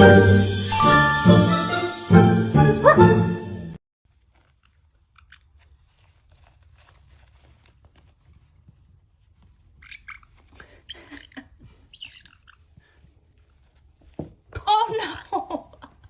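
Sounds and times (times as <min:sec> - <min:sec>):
short high-pitched sounds: 0:00.0 - 0:03.6
animal chewing and crunching: 0:04.1 - 0:14.0.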